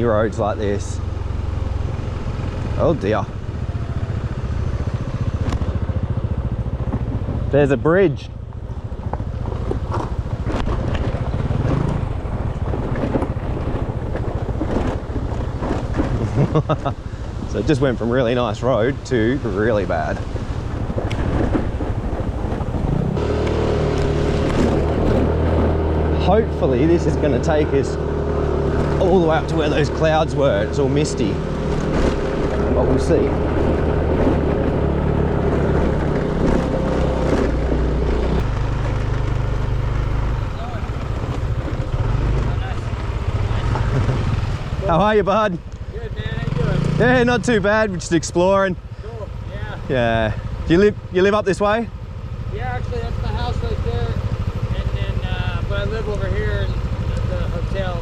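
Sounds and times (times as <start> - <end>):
scooter engine: 0.0 - 58.0
knocks and rattles from bumps: 9.1 - 17.7, 19.9 - 27.1
wind buffeting microphone: 19.9 - 26.2.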